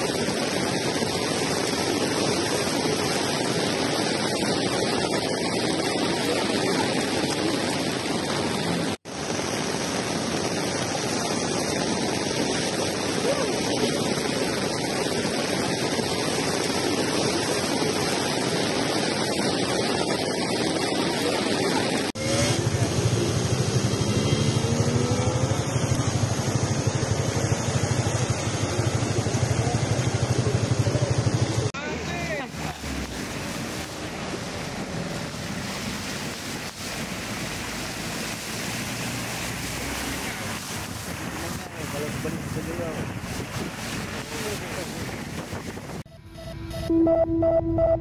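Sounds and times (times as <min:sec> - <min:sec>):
heavy rain and floodwater rushing: 0:00.0 - 0:46.1
vehicle engine revving: 0:22.1 - 0:36.0.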